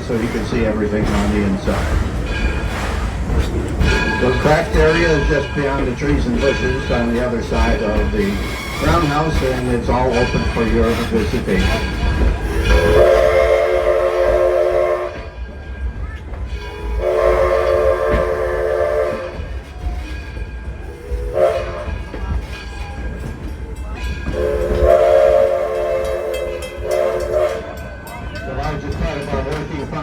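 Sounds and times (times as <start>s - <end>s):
train rumbling: 0.0s - 30.0s
steam locomotive whistle blasts: 12.4s - 15.4s, 16.6s - 19.6s, 20.9s - 22.0s, 24.3s - 27.9s.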